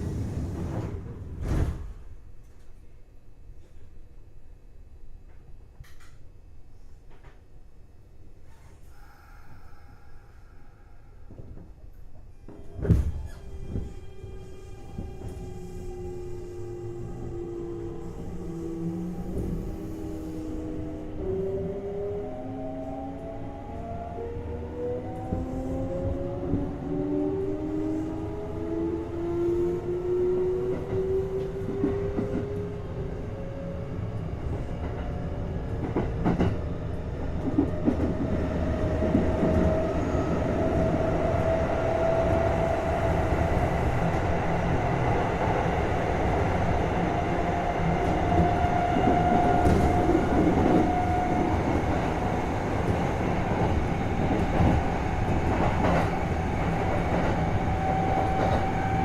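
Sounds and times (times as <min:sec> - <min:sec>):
rail-joint clicks: 0:05.3 - 0:06.3.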